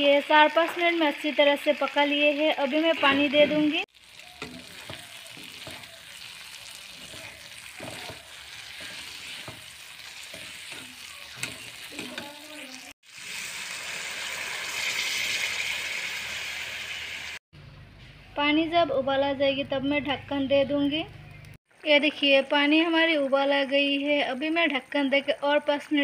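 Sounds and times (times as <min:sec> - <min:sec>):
food sizzling in a pan: 0:00.0 - 0:17.4, 0:21.8 - 0:26.0
water poured into hot pan: 0:00.6 - 0:10.4, 0:11.4 - 0:17.4
spatula scraping a pan: 0:03.3 - 0:12.7.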